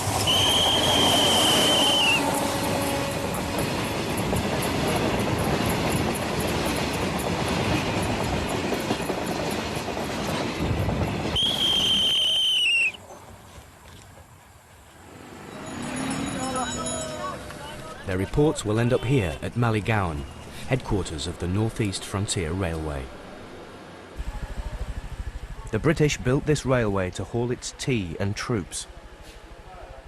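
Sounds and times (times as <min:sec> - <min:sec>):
train rumbling past: 0:00.0 - 0:12.2, 0:14.5 - 0:28.2, 0:28.8 - 0:30.0
train horn blasts: 0:00.3 - 0:04.0.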